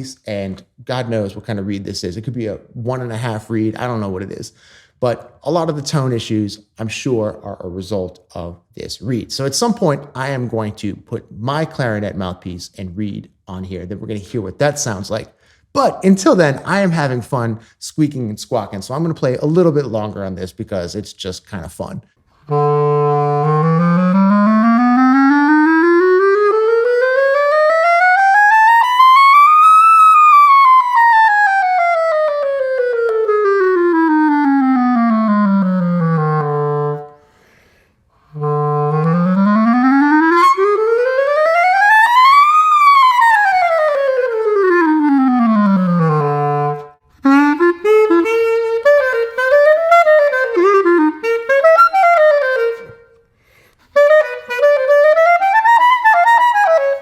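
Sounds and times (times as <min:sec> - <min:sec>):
clarinet sliding up and down: 0:22.2 - 0:57.0
squawking clarinet notes: 0:22.3 - 0:37.4, 0:38.2 - 0:53.2, 0:53.9 - 0:57.0.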